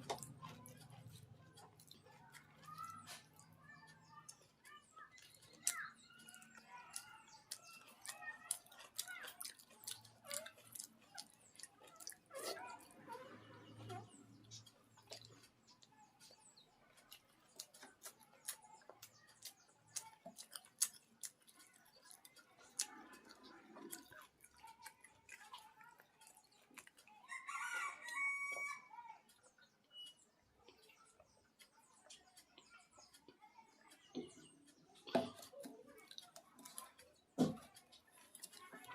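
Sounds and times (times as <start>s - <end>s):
chewing and lip smacking: 0.0s - 38.9s
rooster crowing: 27.3s - 28.9s.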